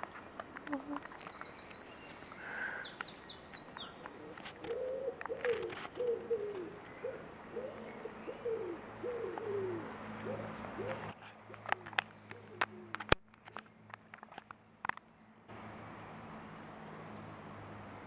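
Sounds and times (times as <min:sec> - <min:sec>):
small birds chirping: 0:00.0 - 0:13.9
pigeon cooing: 0:00.4 - 0:01.6, 0:03.8 - 0:13.2.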